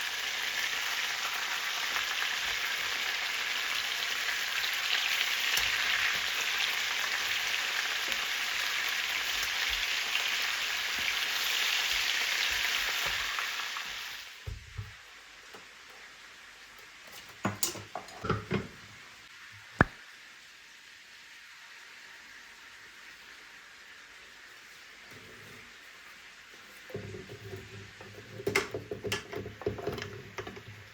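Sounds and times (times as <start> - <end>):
food sizzling in a frying pan: 0.0 - 30.9
kitchen knocks and clatters: 17.1 - 18.9, 26.9 - 30.9.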